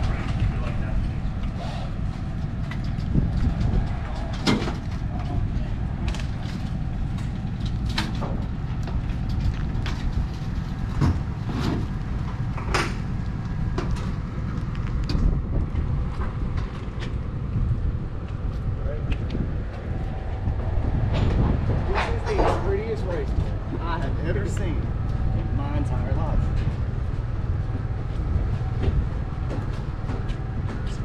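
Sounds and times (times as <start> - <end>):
steady low rumble: 0.0 - 31.0
sharp knocks and clanks: 2.4 - 5.4, 6.0 - 14.2.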